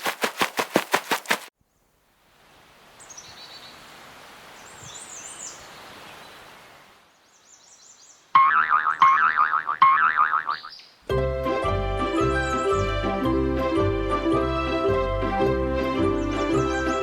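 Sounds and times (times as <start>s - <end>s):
outdoor nature ambience: 0.0s - 13.8s
small birds chirping: 3.0s - 3.8s, 4.6s - 8.3s, 10.4s - 11.1s.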